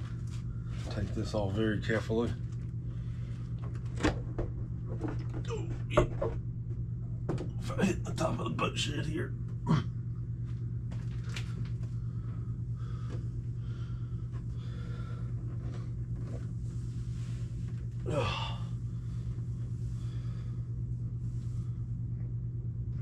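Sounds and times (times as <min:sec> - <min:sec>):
steady low hum: 0:00.0 - 0:23.0
man breathing hard: 0:11.6 - 0:15.9, 0:18.0 - 0:21.9.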